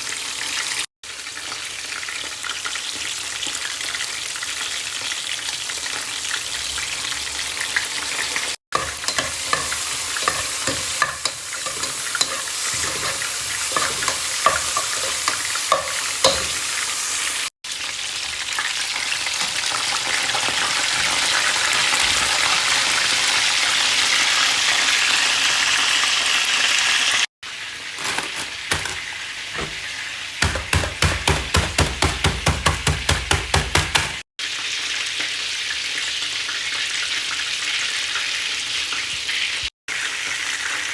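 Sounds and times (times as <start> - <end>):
food sizzling in a pan: 0.0 - 32.1, 33.8 - 40.9
rapid even tapping: 30.4 - 34.2.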